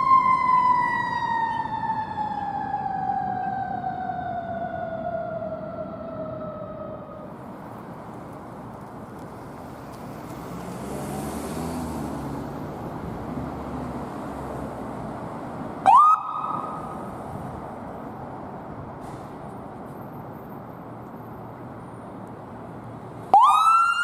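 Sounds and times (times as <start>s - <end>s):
emergency vehicle siren: 0.0s - 8.5s, 10.4s - 18.2s, 23.2s - 24.0s
traffic noise: 0.0s - 24.0s
vehicle engine passing: 7.5s - 17.8s.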